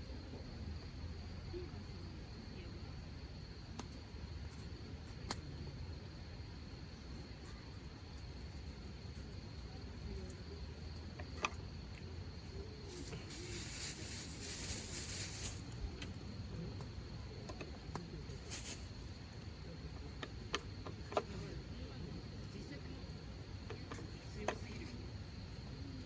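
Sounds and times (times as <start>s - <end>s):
faint insect trill: 0.0s - 26.0s
hiss: 12.7s - 16.3s, 18.3s - 19.2s.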